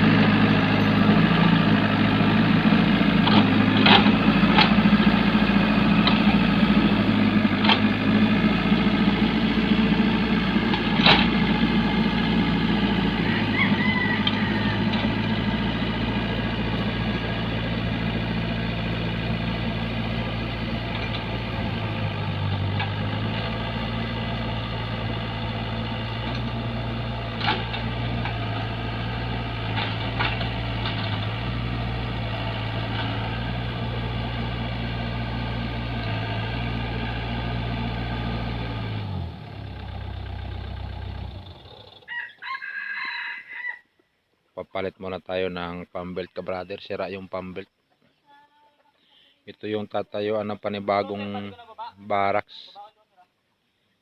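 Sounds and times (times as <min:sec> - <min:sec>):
engine running: 0:00.0 - 0:42.1
rooster crowing: 0:12.9 - 0:15.7, 0:42.0 - 0:44.0.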